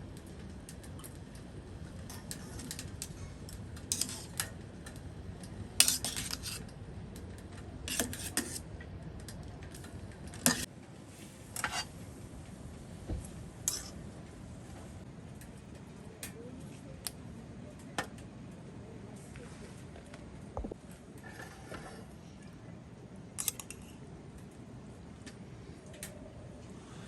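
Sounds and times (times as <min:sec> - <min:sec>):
metal utensils clinking on dishes: 0:03.9 - 0:04.5, 0:05.8 - 0:06.7, 0:10.4 - 0:10.7, 0:11.6 - 0:11.9, 0:13.7 - 0:14.0, 0:23.4 - 0:23.9.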